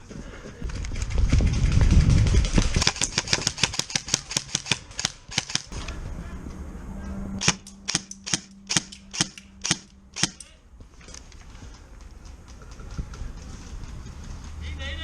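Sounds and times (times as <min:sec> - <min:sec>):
low rumble from camera movement: 0:00.5 - 0:03.7
airsoft gun shots: 0:02.8 - 0:05.8, 0:07.4 - 0:10.5.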